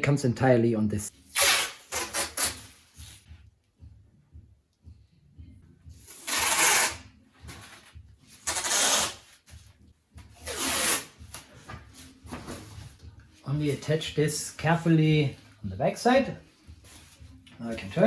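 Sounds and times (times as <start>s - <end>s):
adhesive tape ripping: 1.3s - 2.6s, 6.1s - 7.0s, 8.4s - 9.3s, 10.4s - 11.4s.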